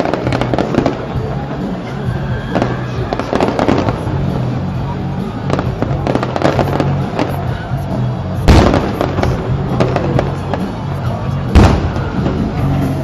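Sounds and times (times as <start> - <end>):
fireworks crackling pops: 0.0 - 13.0
loud firework shell bursts: 5.5 - 10.8, 11.5 - 13.0.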